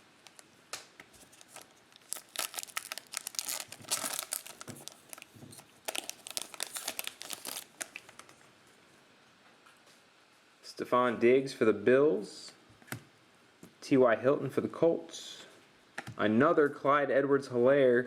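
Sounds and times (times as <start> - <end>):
plastic foil wrapper crinkling and tearing: 1.2 - 8.4.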